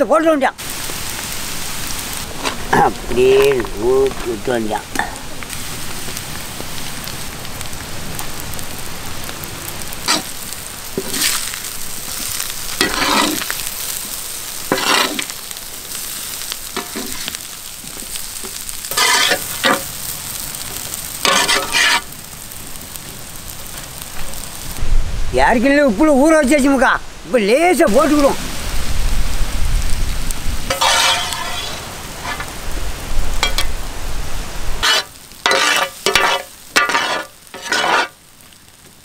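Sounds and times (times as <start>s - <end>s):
masala sizzling in hot oil: 0.0s - 39.0s
spoon stirring and scraping: 18.9s - 19.8s, 21.3s - 22.0s, 30.7s - 32.5s, 34.8s - 38.1s.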